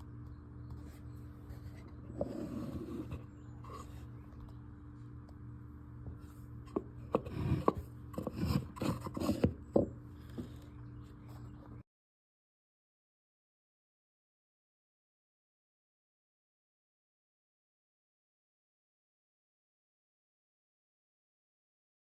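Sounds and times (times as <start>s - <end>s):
steady low hum: 0.0s - 11.8s
wooden pieces rubbing and scraping: 0.8s - 4.1s, 6.7s - 10.7s.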